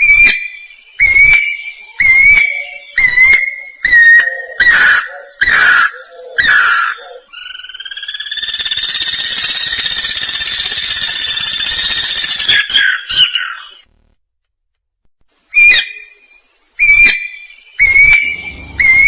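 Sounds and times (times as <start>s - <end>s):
cuckoo whistling and trilling: 0.0s - 10.0s.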